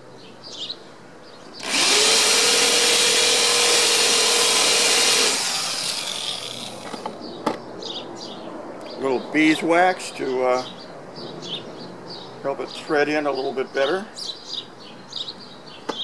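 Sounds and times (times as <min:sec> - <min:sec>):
power drill cutting wood: 0:01.6 - 0:07.1.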